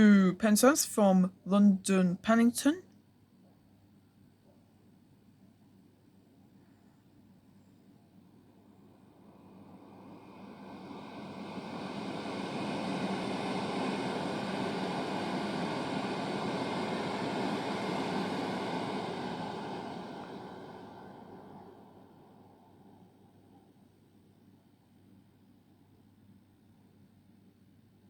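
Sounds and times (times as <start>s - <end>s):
train passing rumble: 8.6s - 23.6s.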